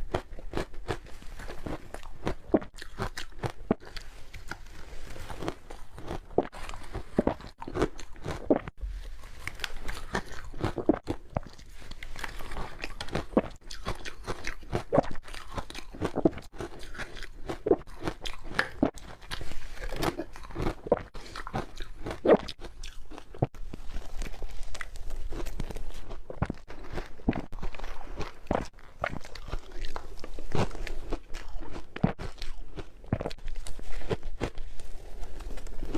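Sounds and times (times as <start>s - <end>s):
ice being chewed: 0.0s - 35.9s.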